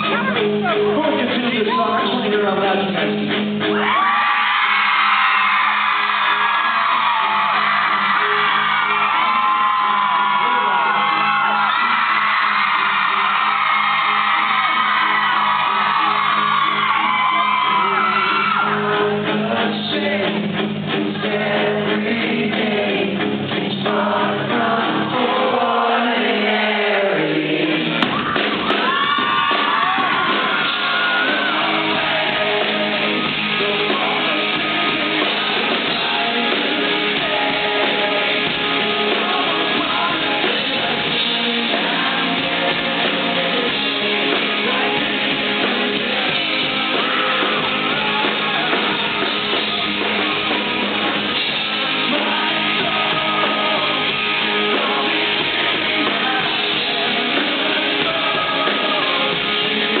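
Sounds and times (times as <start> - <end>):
live rock band playing: 0.0 - 60.0
person singing: 6.0 - 60.0.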